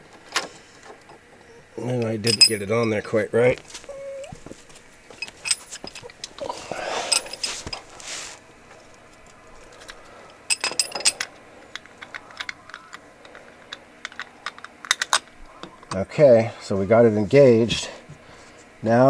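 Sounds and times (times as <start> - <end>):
metal tools clicking and scraping: 0.8 - 3.2, 5.1 - 8.1, 9.7 - 16.0.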